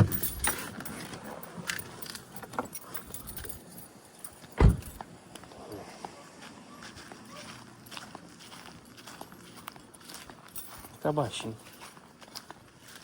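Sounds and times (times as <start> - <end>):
keys jingling while walking: 0.0 - 5.1, 7.3 - 13.0
dull thump: 4.6 - 5.0.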